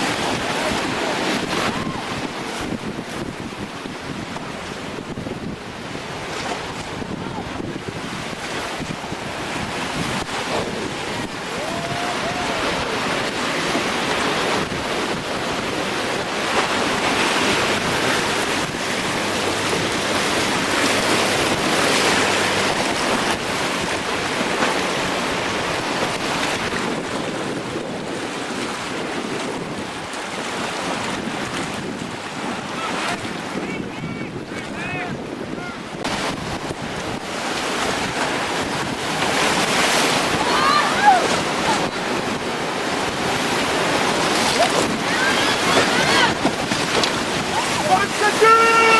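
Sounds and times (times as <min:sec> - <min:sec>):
whitewater rushing: 0:00.0 - 0:48.9
wind buffeting microphone: 0:00.0 - 0:48.9.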